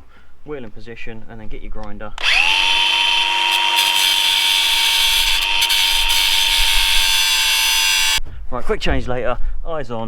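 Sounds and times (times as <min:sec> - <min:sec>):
angle grinder running: 0:02.2 - 0:08.2.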